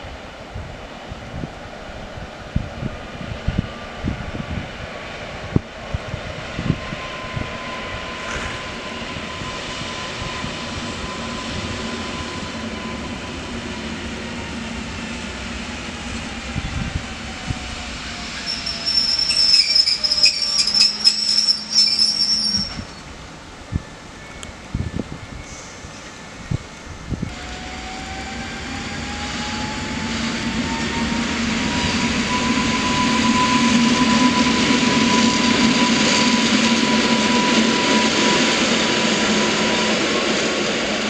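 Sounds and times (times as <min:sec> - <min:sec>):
wind buffeting microphone: 0:00.0 - 0:18.6, 0:22.4 - 0:41.0
train motor whine: 0:15.9 - 0:23.1
high-pitched wheel squeal: 0:18.1 - 0:23.1, 0:31.7 - 0:38.6.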